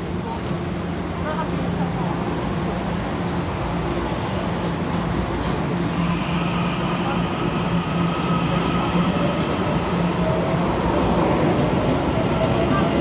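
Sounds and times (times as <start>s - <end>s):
electric train passing: 3.0s - 13.0s.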